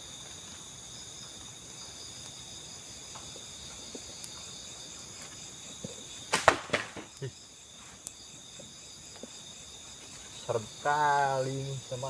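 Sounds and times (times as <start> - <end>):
crickets chirring: 0.0 - 12.0
loud sharp cracks: 6.3 - 7.3.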